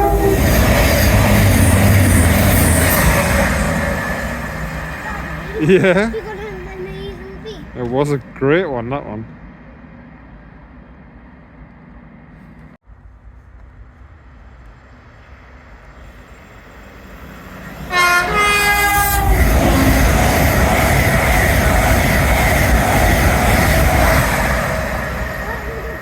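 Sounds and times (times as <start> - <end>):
train horn blast: 0.0 - 4.7, 17.9 - 20.4
train passing at speed: 0.0 - 26.0.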